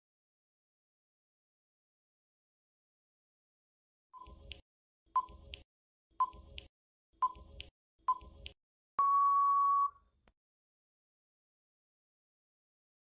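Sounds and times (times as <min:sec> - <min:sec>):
short timer beeps: 0:06.2 - 0:10.0
long timer beep: 0:09.0 - 0:10.0.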